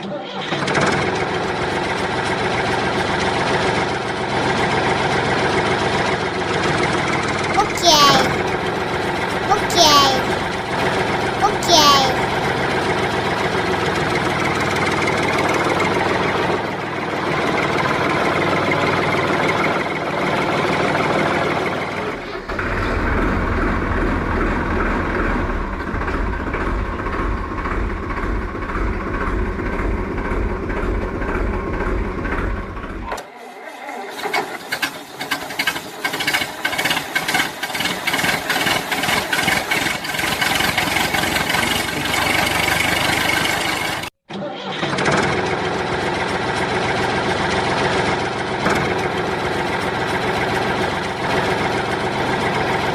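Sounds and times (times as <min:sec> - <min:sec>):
deep rumble: 0:22.6 - 0:32.9
toy vehicle engine noise: 0:33.0 - 0:51.8.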